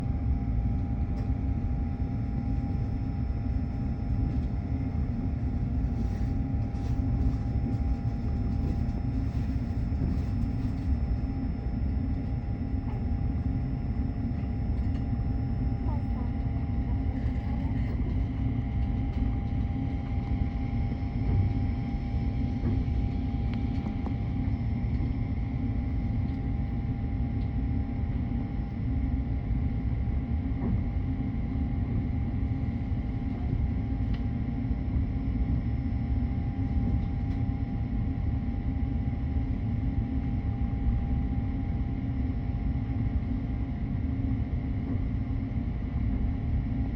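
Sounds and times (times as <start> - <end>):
faint steady hum: 0.0 - 46.9
train rumbling: 22.5 - 24.2.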